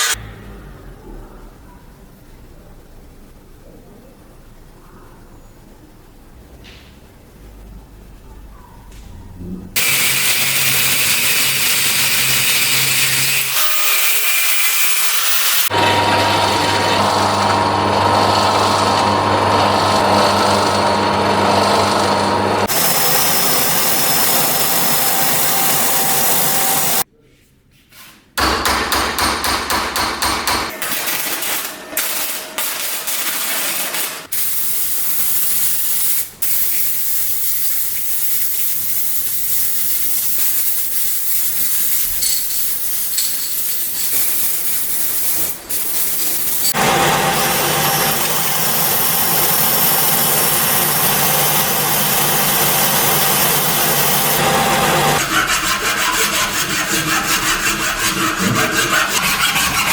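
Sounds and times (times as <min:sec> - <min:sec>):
hissing rasping abrasive work: 0:09.8 - 0:15.8, 0:19.1 - 0:27.0, 0:38.0 - 0:59.9
motor-driven tool running: 0:15.1 - 0:27.0, 0:45.8 - 0:55.2.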